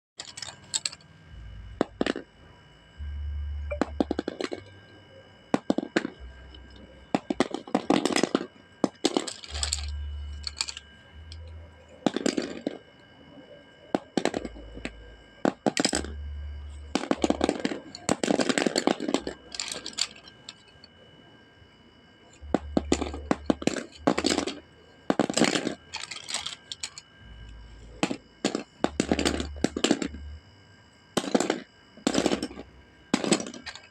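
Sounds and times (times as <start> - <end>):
pencils clattering on a whiteboard: 0.2 - 1.0, 22.8 - 27.0.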